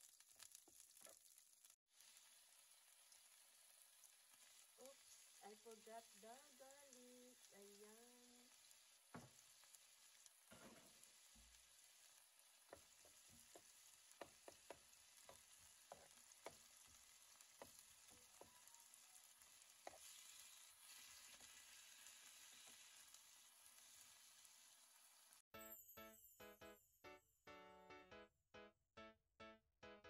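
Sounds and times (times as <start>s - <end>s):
food sizzling in frying pan: 0.0s - 25.4s
spatula tapping pan: 12.5s - 18.8s, 19.7s - 20.2s.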